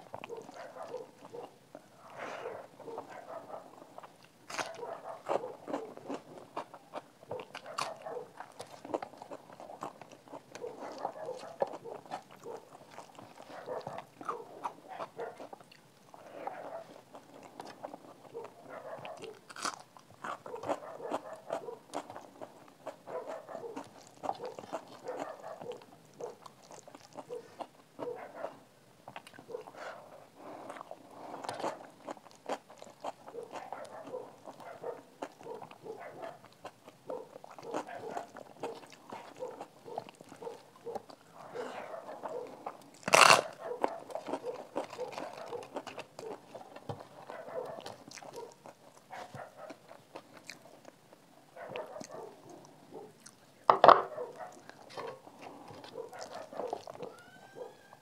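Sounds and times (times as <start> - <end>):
person chewing crunchy food: 0.0 - 58.0
crisp crunches: 4.4 - 6.6, 19.2 - 20.8, 42.7 - 49.1.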